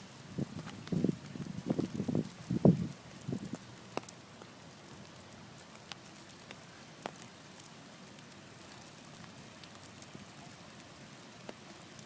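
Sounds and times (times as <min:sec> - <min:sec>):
light ticks: 0:03.2 - 0:12.0.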